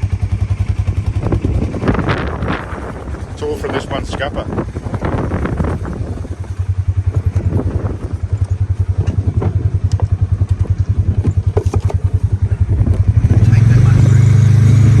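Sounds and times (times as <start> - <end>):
vehicle engine low throb: 0.0 - 15.0
light knocks and clatter: 8.2 - 13.0.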